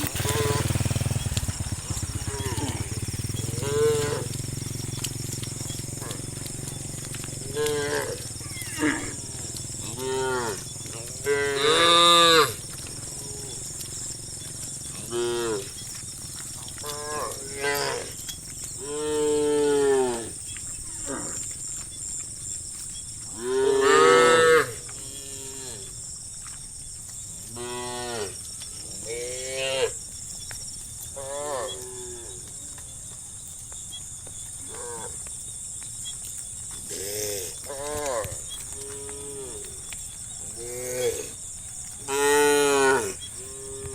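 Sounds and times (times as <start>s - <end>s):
animals calling: 0.0s - 26.0s, 36.0s - 43.9s.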